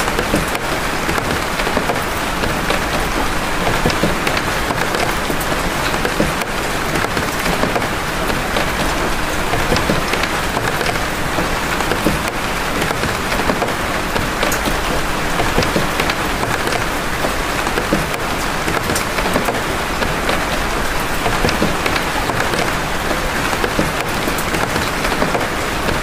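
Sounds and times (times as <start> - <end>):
heavy rain drops: 0.0 - 26.0.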